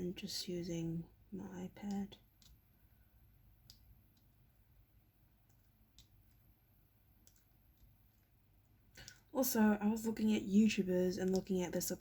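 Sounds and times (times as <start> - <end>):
faint pen clicks: 1.8 - 2.6, 3.6 - 4.3.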